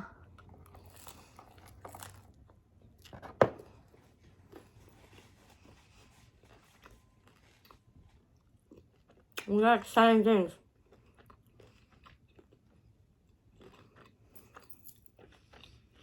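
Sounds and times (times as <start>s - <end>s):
chewing pizza: 0.0s - 9.6s, 10.5s - 16.0s.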